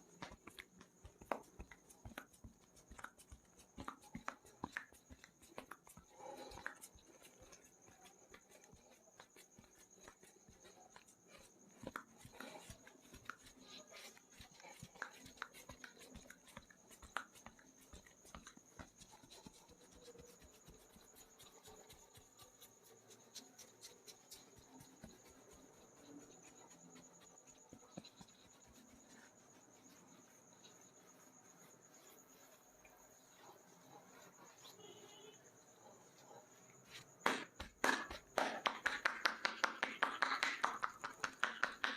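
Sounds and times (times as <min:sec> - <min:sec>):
soft rubbing of skin: 0:00.0 - 0:41.8.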